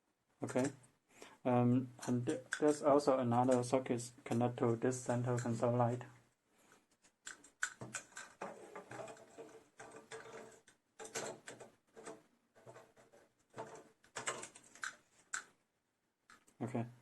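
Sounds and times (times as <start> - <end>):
plastic connectors clicking: 2.0 - 4.5, 7.2 - 12.2, 13.6 - 15.5, 16.3 - 16.6
cables rustling: 6.6 - 15.5.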